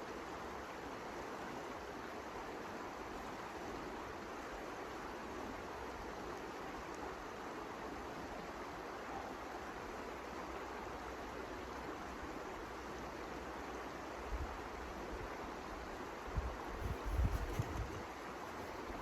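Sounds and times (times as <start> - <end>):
rushing wind: 16.4 - 19.0
wind buffeting microphone: 16.4 - 19.0.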